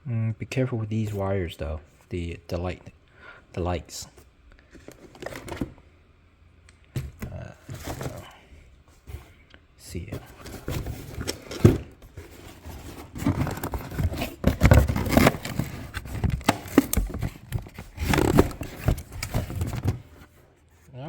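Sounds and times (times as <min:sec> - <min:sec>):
plastic parts scraping and clicking: 0:10.1 - 0:20.3.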